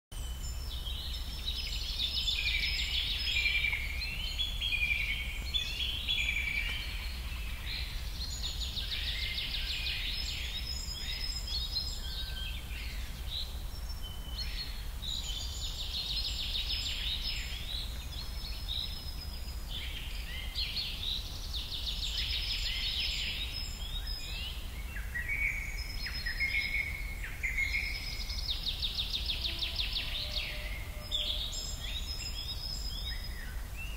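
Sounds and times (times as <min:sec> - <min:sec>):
birds trilling and chirping: 0:00.2 - 0:33.9.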